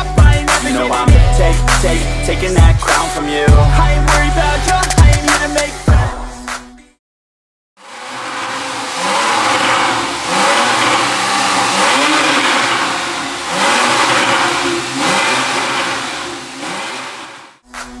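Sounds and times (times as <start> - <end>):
car engine revving: 7.8 - 17.6.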